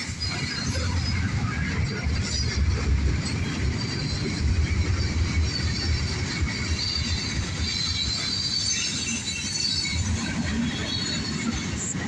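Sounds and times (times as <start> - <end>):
freight train rumbling past: 0.0 - 12.0
high wheel squeal: 5.8 - 12.0.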